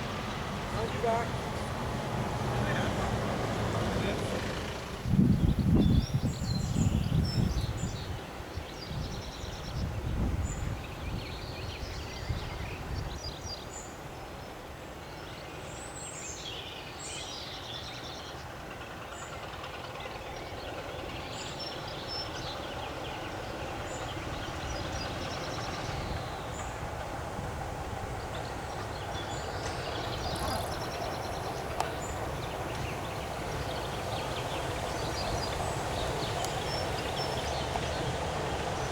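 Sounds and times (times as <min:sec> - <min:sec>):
train rumbling: 0:00.0 - 0:38.9
birds singing: 0:05.2 - 0:18.5, 0:20.0 - 0:27.2, 0:27.9 - 0:38.9.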